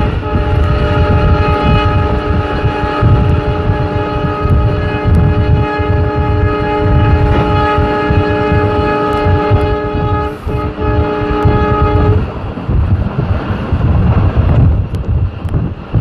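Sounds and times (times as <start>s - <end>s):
train horn blast: 0.0s - 12.6s
passing train rumble: 0.0s - 16.0s.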